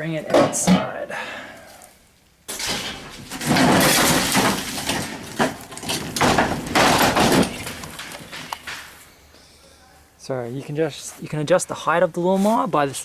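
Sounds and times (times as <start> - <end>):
lawn mower clattering and scraping: 2.5 - 9.0.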